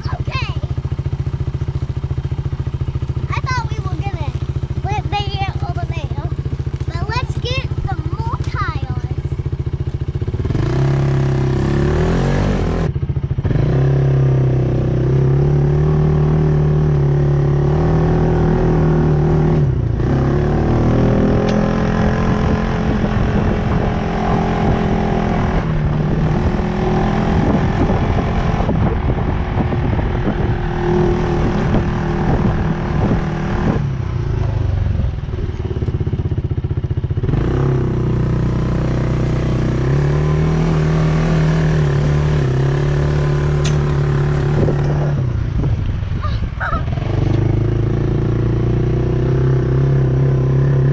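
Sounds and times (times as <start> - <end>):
engine revving under way: 10.4 - 34.9, 37.2 - 50.9.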